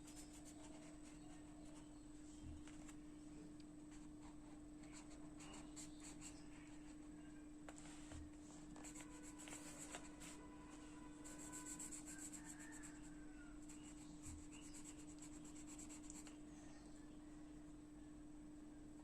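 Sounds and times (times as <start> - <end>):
pencil scratching on paper: 0.0 - 1.8, 8.8 - 10.5, 11.2 - 13.1, 13.7 - 16.4
steady low hum: 0.0 - 19.0.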